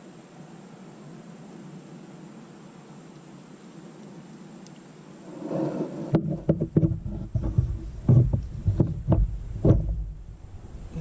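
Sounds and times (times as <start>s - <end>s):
soft hiss: 0.0s - 11.0s
kayak knocks and thumps: 6.0s - 10.4s.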